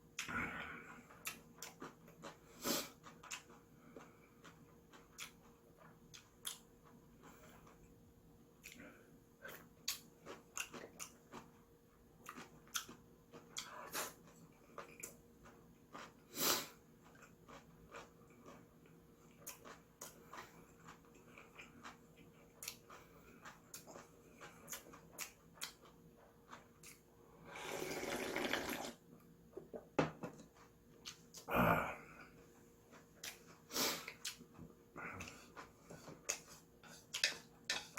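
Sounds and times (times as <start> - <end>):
wet chewing and clicking: 1.0 - 8.0, 8.6 - 27.1, 30.4 - 31.5, 32.9 - 37.9
noodle slurp: 27.4 - 29.0.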